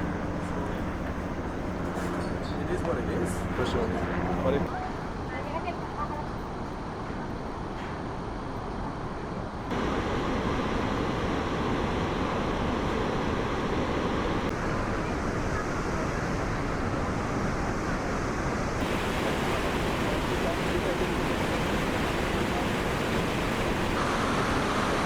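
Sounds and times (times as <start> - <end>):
waterfall roaring: 9.7 - 25.0.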